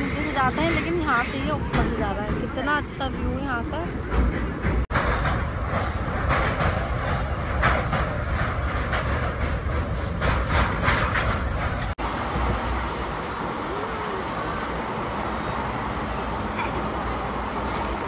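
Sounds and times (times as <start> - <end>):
train wheels clattering over rail joints: 4.0 - 12.0.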